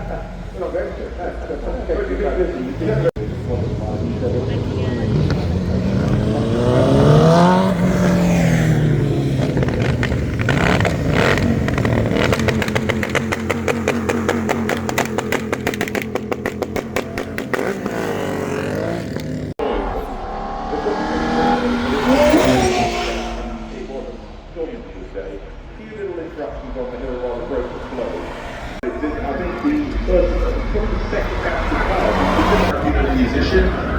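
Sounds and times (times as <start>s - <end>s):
exhaust crackling: 0.0s - 33.9s
racing car engine revving: 0.0s - 33.9s.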